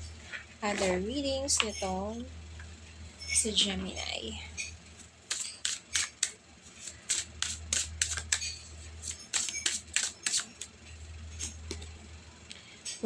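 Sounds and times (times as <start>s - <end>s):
faint low hum: 0.0s - 13.0s
cards clicking and snapping: 5.3s - 10.7s.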